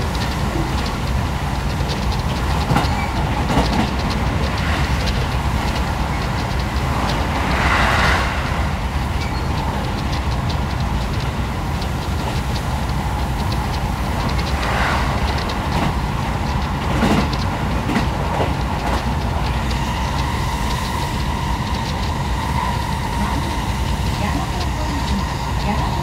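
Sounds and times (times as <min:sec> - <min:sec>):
light clicks from rails: 0:00.0 - 0:26.0
train carriage rumbling on track: 0:00.0 - 0:26.0.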